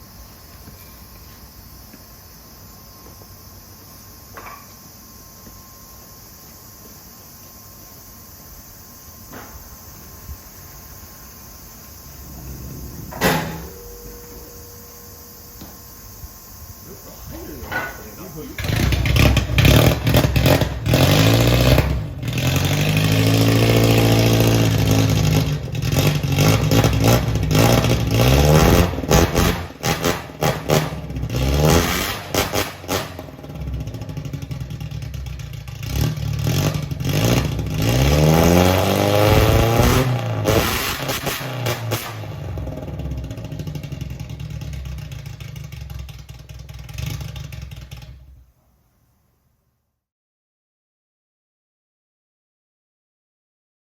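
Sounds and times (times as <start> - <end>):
car engine revving: 11.9 - 15.4, 16.9 - 45.9.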